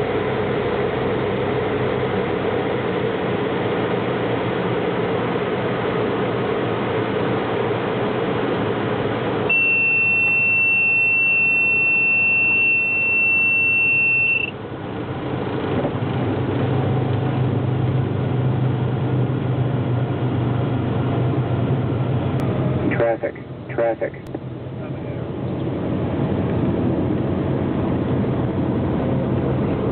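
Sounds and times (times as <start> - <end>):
airplane engine and cabin noise: 0.0 - 29.9
high-pitched beep: 9.5 - 14.6.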